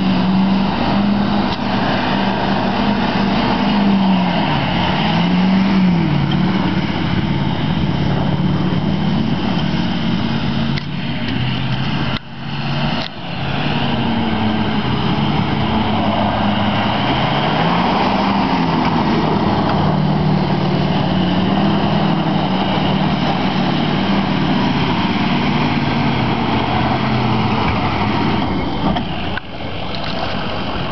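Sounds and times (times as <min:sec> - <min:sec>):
truck engine revving: 0:00.0 - 0:30.9.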